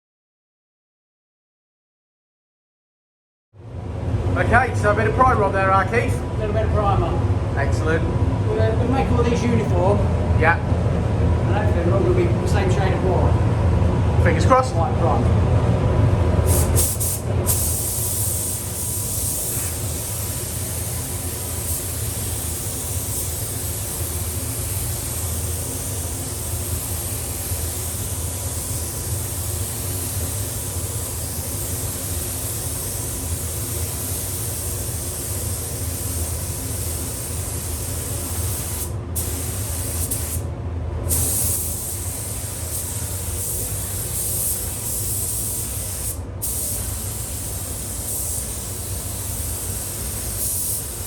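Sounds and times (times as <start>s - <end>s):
fan humming: 3.6s - 51.0s
spray gun hissing: 16.5s - 40.4s, 41.1s - 51.0s.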